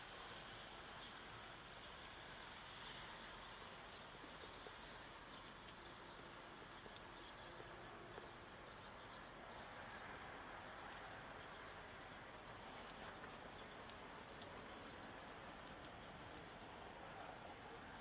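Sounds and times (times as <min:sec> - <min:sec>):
faint hiss: 0:00.0 - 0:18.0
soft ticks: 0:03.5 - 0:09.2, 0:09.9 - 0:18.0.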